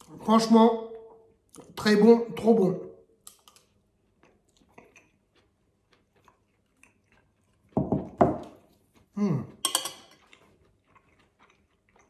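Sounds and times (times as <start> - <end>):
person chewing: 3.1 - 12.0
faint crunches and mouth clicks: 3.3 - 12.0.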